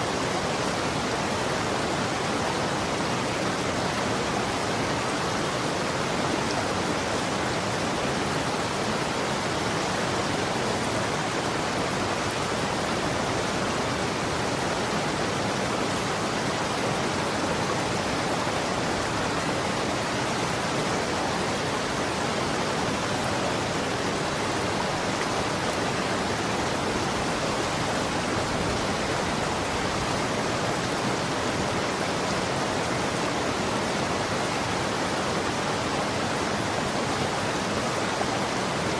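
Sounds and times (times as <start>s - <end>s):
running water flowing: 0.0s - 38.9s.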